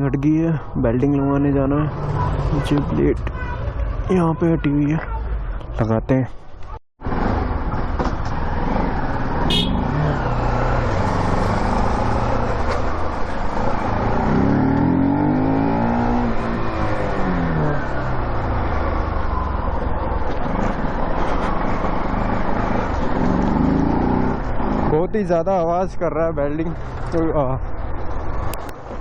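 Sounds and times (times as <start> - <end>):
motorcycle engine and road noise: 0.0 - 29.0
another engine rising and falling: 7.0 - 25.0.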